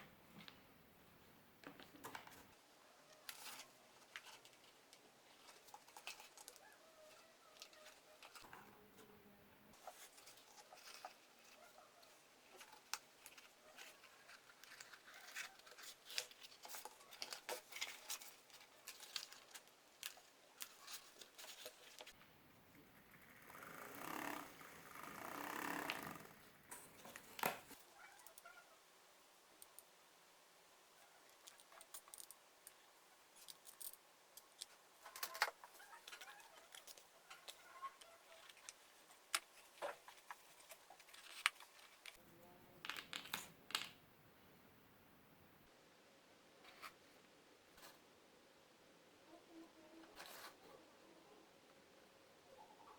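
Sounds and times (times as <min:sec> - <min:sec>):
rustling and scraping: 0:09.7 - 0:22.2, 0:33.4 - 0:42.2, 0:50.0 - 0:50.8.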